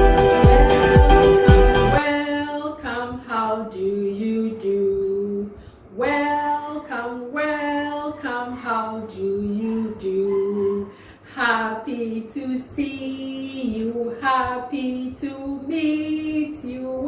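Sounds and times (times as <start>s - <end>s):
electronic music with thumping beat: 0.0s - 2.0s
woman singing unaccompanied: 0.0s - 17.0s.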